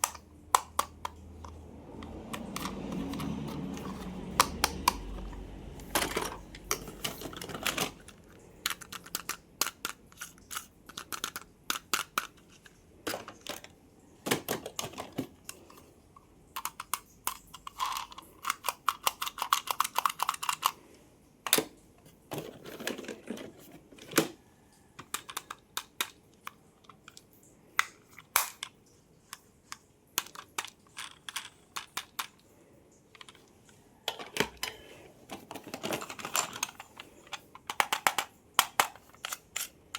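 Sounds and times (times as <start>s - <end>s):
plastic toy clicks and taps: 0.0s - 13.7s, 16.6s - 20.8s, 25.0s - 27.2s, 30.2s - 32.4s, 35.5s - 39.7s.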